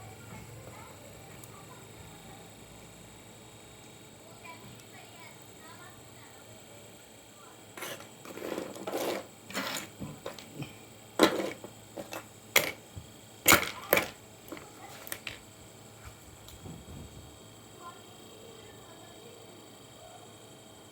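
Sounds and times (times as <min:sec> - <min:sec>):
hard objects clicking and knocking: 0:07.8 - 0:15.4.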